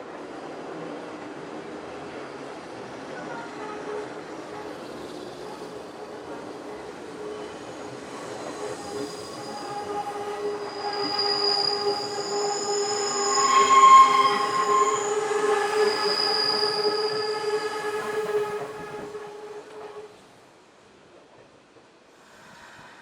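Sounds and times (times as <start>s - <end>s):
train running: 0.0s - 23.0s
metallic wheel squeal: 7.4s - 19.5s.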